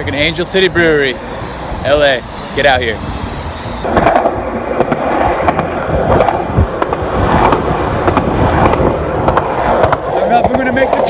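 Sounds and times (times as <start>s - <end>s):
skateboard wheels rumbling: 0.0s - 11.0s
skateboard wheels clicking over joints: 3.8s - 11.0s.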